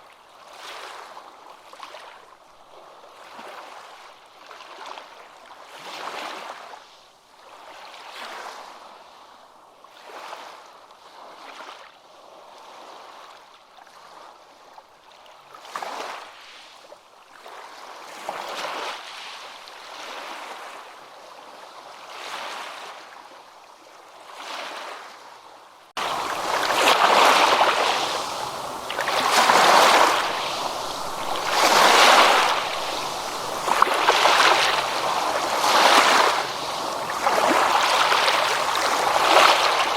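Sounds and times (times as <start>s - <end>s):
ocean waves washing in: 26.0s - 39.9s.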